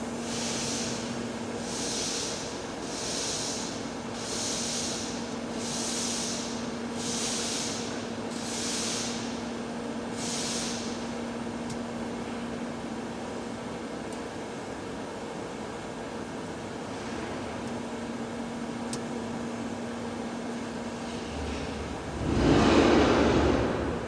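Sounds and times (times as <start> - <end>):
welding arc hiss: 0.2 - 9.4, 10.1 - 11.1.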